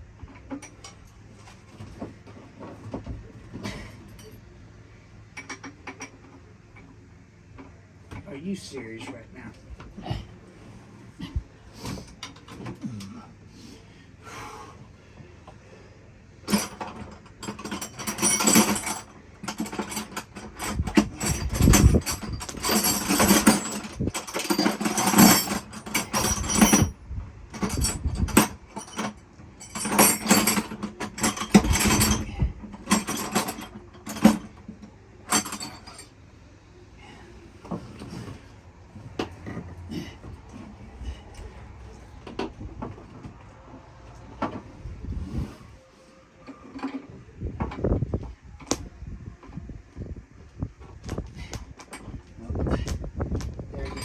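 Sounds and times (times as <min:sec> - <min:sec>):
metal tools clattering: 0:03.6 - 0:04.4, 0:16.5 - 0:36.2, 0:53.8 - 0:54.0.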